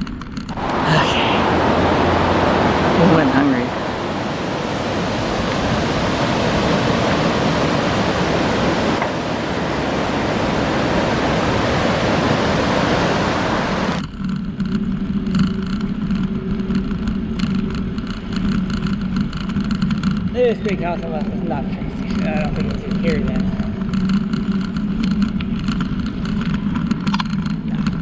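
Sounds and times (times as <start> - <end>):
wind rushing over microphone: 0.5 - 14.0.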